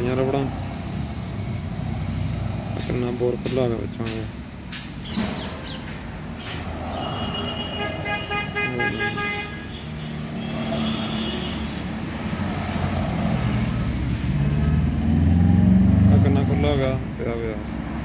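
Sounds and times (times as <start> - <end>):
traffic noise: 0.0 - 18.0
vehicle horn: 7.0 - 11.9.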